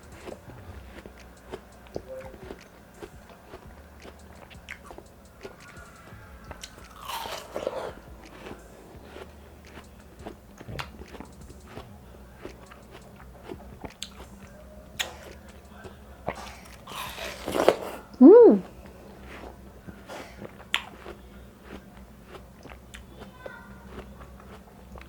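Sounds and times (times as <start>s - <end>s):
wet mouth clicks: 0.0s - 15.6s, 20.2s - 23.1s
biting and chewing watermelon: 0.0s - 25.0s.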